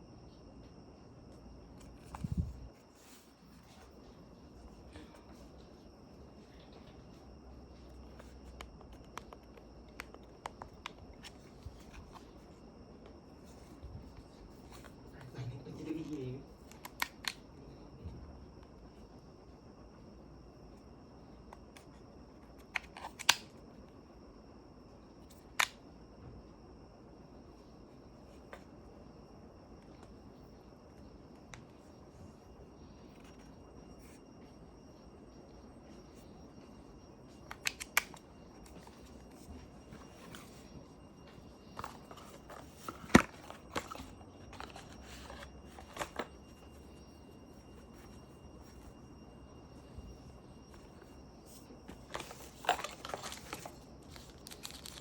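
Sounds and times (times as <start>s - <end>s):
faint high-pitched tone: 26.0s - 55.0s.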